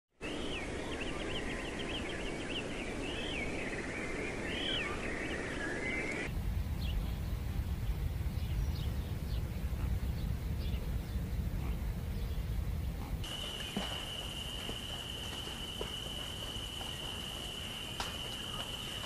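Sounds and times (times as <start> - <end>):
outdoor background: 0.1 - 19.0
birds chirping: 0.2 - 19.0
low rumble: 6.3 - 19.0.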